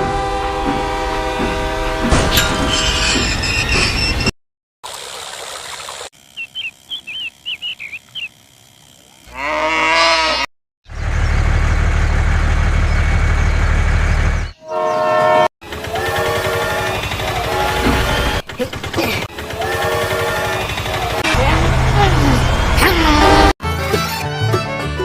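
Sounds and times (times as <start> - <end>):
train horn blasts: 0.0 - 3.3, 14.6 - 18.4
train running past: 0.0 - 4.2, 15.6 - 18.6, 19.3 - 23.5.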